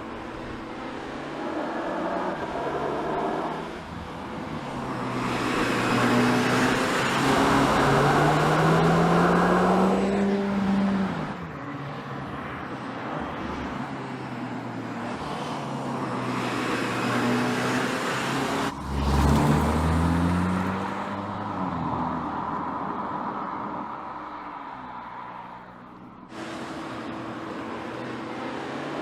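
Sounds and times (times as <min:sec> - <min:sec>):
car engine accelerating: 0:00.0 - 0:11.6, 0:15.1 - 0:21.7, 0:26.3 - 0:29.0.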